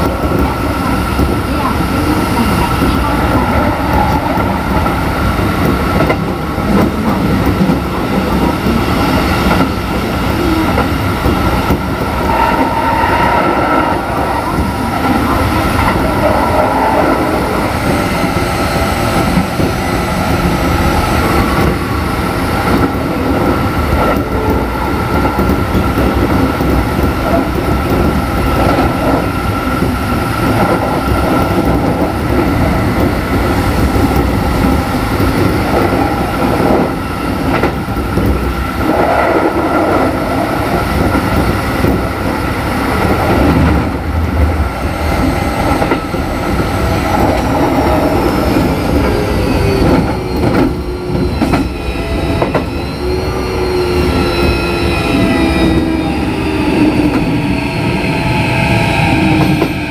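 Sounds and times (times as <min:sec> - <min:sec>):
clickety-clack of rail joints: 0:00.0 - 0:52.8, 0:59.1 - 0:59.9
train wheels rumbling on rail: 0:00.0 - 0:59.9
steady high tone: 0:42.4 - 0:59.9.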